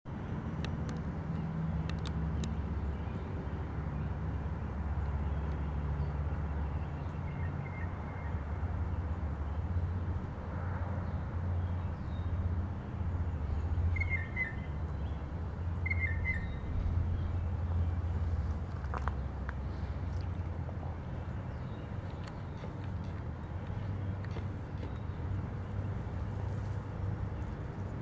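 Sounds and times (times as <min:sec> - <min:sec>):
low background rumble: 0:00.3 - 0:28.0
bird chirping: 0:13.1 - 0:18.0.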